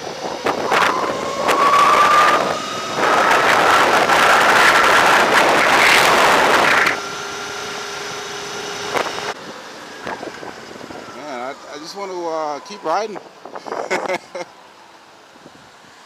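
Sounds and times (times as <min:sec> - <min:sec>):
wind buffeting microphone: 0:00.0 - 0:07.0
electric motor whine: 0:00.0 - 0:13.3.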